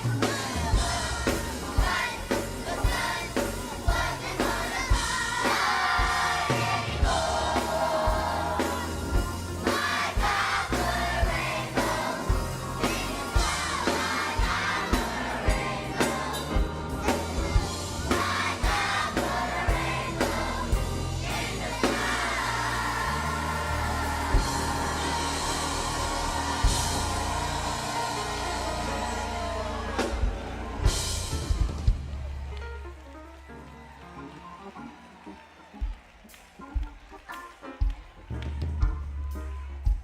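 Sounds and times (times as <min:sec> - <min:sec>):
choir singing gospel song: 0:00.0 - 0:32.0
steady drum beat: 0:00.0 - 0:32.9
band backing: 0:00.0 - 0:40.0.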